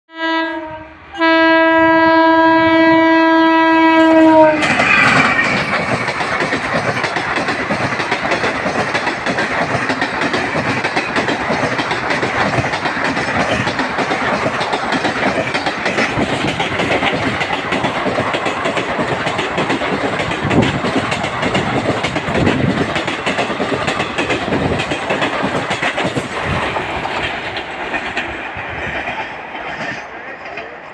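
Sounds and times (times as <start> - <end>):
train horn: 0.1 - 5.4
train wheels clattering over joints: 4.6 - 30.9.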